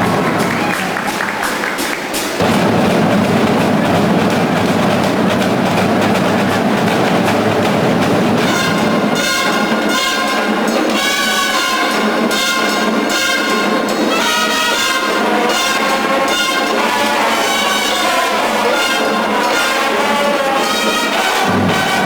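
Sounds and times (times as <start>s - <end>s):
brass section chords: 0.0s - 22.0s
marching drum line: 0.0s - 22.0s.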